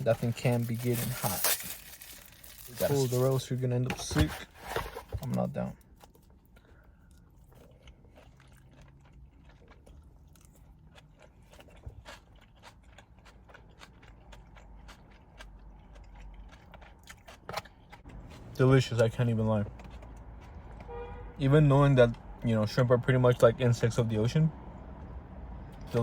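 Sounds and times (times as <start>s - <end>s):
person chewing: 6.0s - 18.6s, 19.8s - 20.8s.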